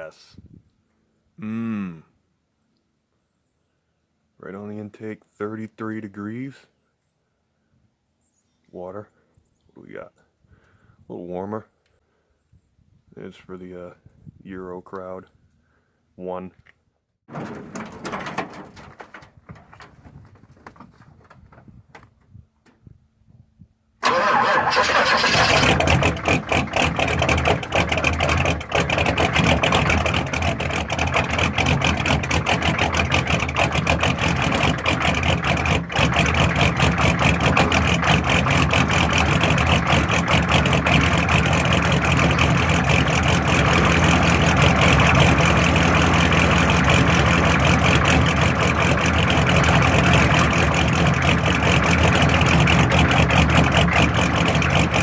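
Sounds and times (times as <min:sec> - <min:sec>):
diesel engine starting and idling: 0:24.0 - 0:55.0.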